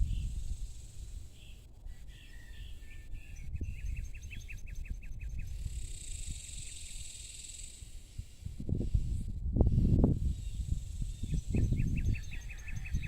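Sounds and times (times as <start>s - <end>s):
high insect buzz: 5.5s - 11.5s.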